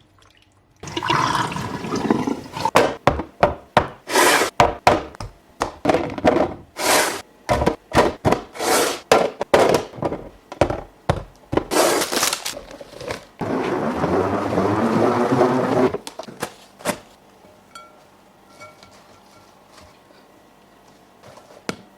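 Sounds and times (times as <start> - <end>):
packaging rustling: 11.7 - 13.4.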